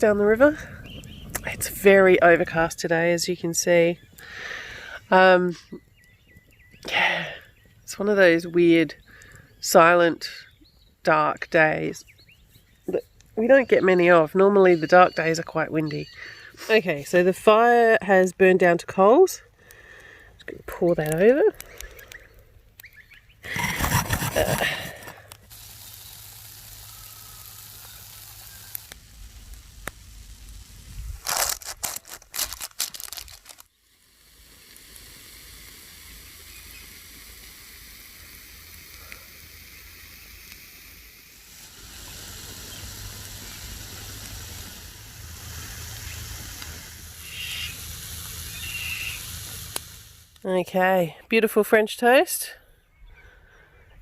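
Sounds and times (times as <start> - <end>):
food sizzling in a pan: 25.5 - 31.2, 33.8 - 50.4.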